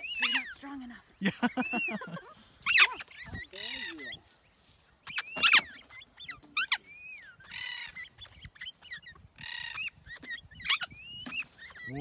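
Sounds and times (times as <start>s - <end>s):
parrot screeching: 6.6s - 8.1s.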